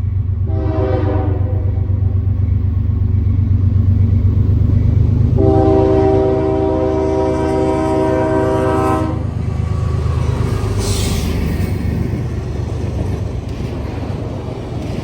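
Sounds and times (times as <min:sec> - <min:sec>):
train engine rumble: 0:00.0 - 0:15.0
locomotive horn blast: 0:00.4 - 0:02.1, 0:05.4 - 0:09.4.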